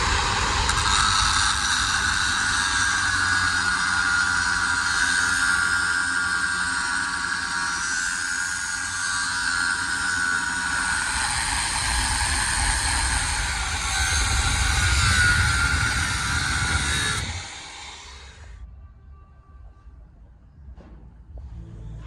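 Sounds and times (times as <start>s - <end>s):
power tool whining: 0.0s - 18.6s
low rumble: 10.9s - 22.0s.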